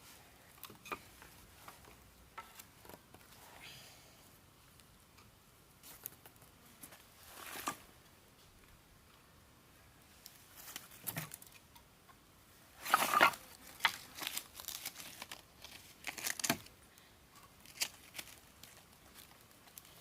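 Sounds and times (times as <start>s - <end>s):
crackling and rustling handling: 0.0s - 3.5s, 5.8s - 9.2s, 10.1s - 11.7s, 12.8s - 20.0s.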